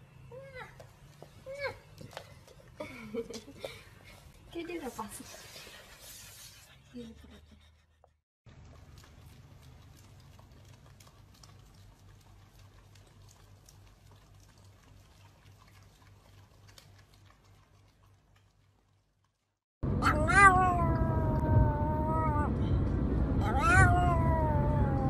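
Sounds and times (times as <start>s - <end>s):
dogs licking and smacking: 8.5s - 19.5s.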